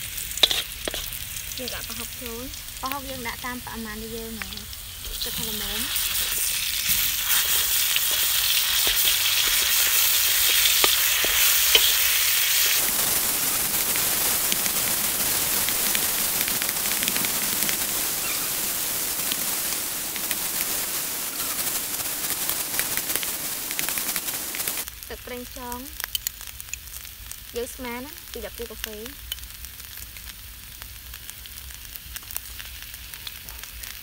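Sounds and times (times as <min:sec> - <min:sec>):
paste sizzling in hot oil: 0:00.0 - 0:34.0
wooden spatula scraping a wok: 0:00.3 - 0:01.9, 0:05.0 - 0:12.8.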